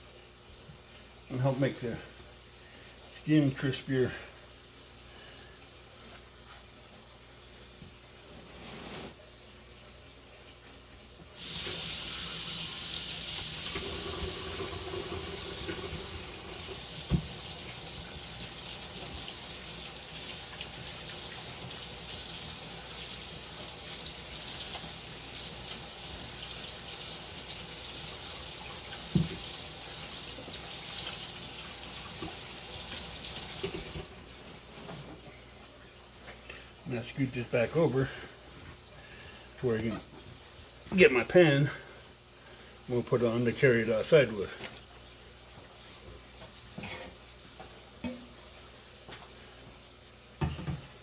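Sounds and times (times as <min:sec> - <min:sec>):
tap water running into sink: 0:11.3 - 0:34.2, 0:47.6 - 0:48.4.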